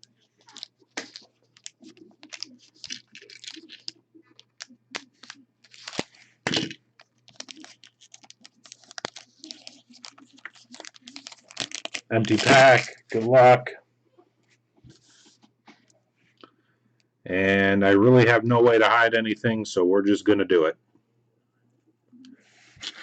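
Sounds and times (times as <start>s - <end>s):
wrapper tearing and crinkling: 0.4s - 13.2s.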